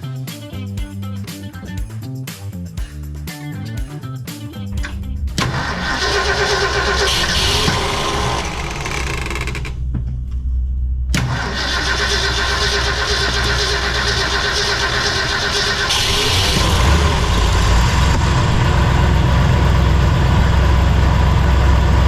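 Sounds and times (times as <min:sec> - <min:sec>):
truck engine starting and running: 0:04.6 - 0:22.0.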